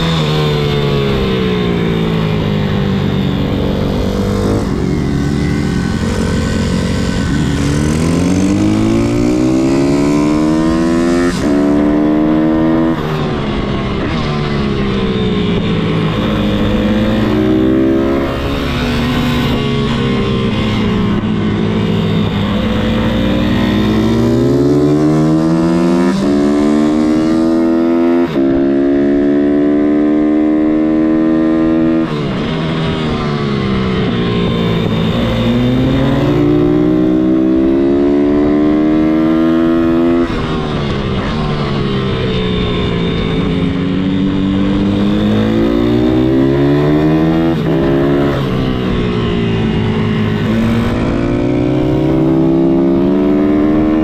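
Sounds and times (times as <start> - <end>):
pit bike engine accelerating: 0.0 - 54.0.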